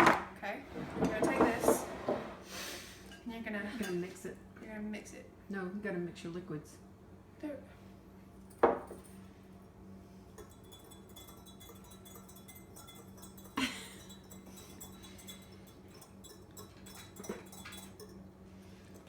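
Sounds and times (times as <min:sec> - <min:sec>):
glass kitchenware clinking: 0:08.5 - 0:09.3, 0:10.2 - 0:19.0.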